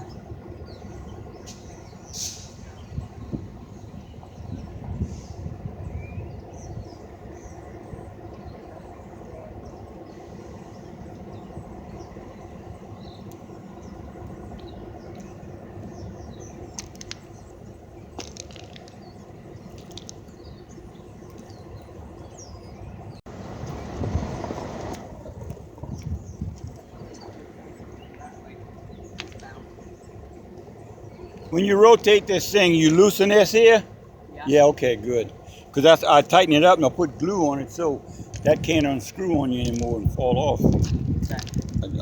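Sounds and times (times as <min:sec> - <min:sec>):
small birds chirping: 0:00.0 - 0:23.3, 0:25.6 - 0:42.0
engine idling: 0:26.8 - 0:40.7.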